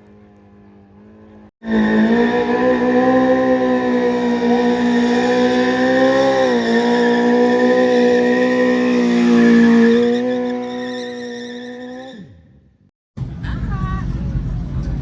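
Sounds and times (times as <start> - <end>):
motorbike engine at high revs: 0.0 - 12.5.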